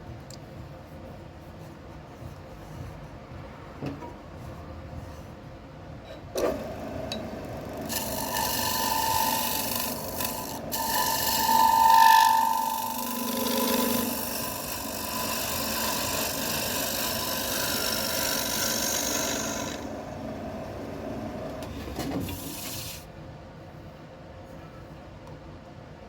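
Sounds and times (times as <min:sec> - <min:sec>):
wood scraping on a lathe: 0:06.4 - 0:23.1.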